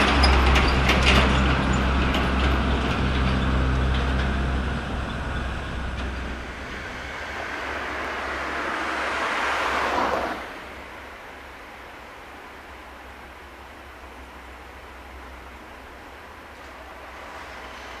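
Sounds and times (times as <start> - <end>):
train low rumble and hum: 0.0 - 18.0
train rushing noise: 0.0 - 18.0.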